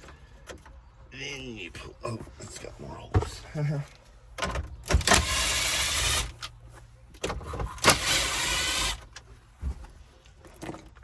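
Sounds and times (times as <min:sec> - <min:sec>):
small electric motor whirring: 0:05.1 - 0:06.3, 0:07.9 - 0:09.0.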